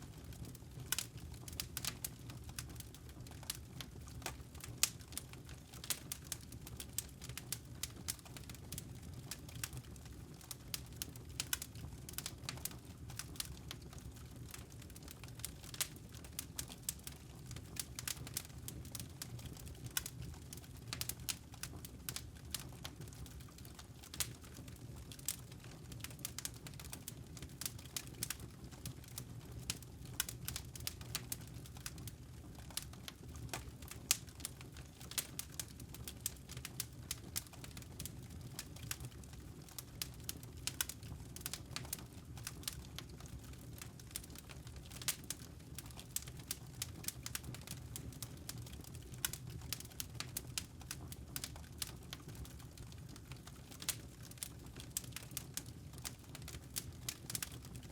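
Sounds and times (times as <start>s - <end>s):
low rumble of flames: 0.0s - 57.9s
campfire pops and snaps: 49.2s - 52.4s, 53.2s - 57.6s.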